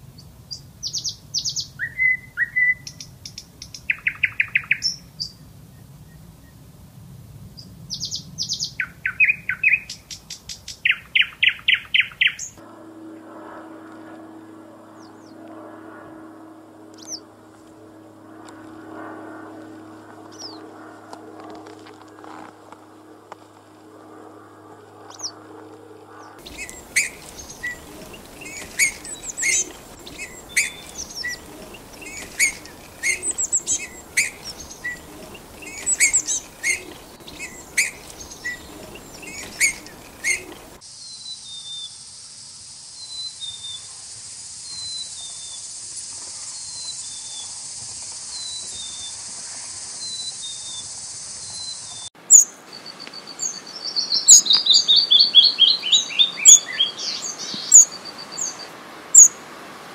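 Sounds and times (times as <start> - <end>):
songbird calls: 0.5 - 6.6, 7.9 - 12.6, 26.4 - 41.9, 49.9 - 59.4
bird trills: 0.8 - 5.4, 7.9 - 12.6, 17.0 - 17.3, 26.2 - 40.8, 51.5 - 59.3
steady high hiss: 26.4 - 55.0.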